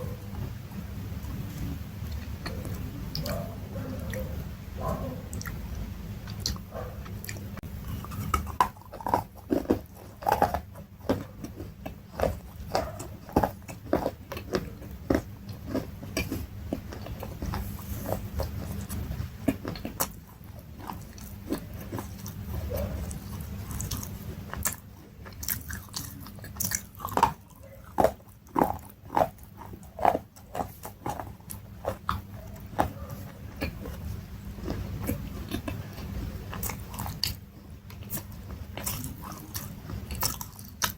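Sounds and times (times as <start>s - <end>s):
crunchy chewing: 0.0s - 40.9s.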